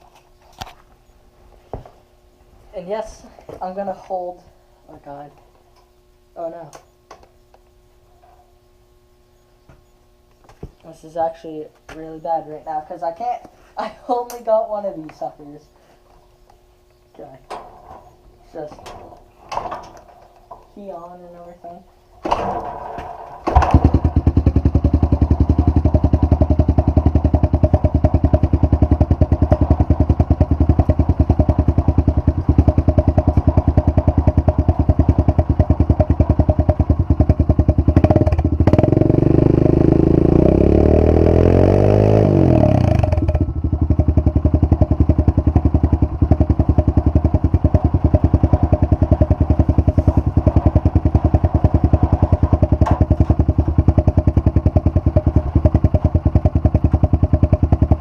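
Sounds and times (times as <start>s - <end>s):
dirt bike engine idling and revving: 22.6s - 58.0s.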